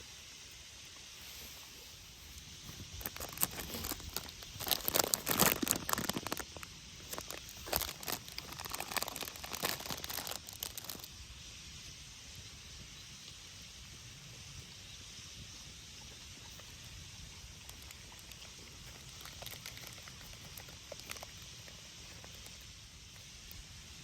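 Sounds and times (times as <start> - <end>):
crinkling and crunching by hand: 2.2 - 11.1, 16.5 - 23.6.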